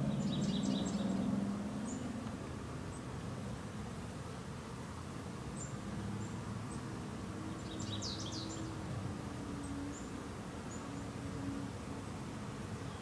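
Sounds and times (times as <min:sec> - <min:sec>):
birdsong: 0:00.0 - 0:02.2, 0:05.6 - 0:08.8, 0:12.8 - 0:13.0
small birds chirping: 0:00.0 - 0:02.2, 0:05.5 - 0:08.8, 0:12.8 - 0:13.0
honeybees humming: 0:00.0 - 0:13.0.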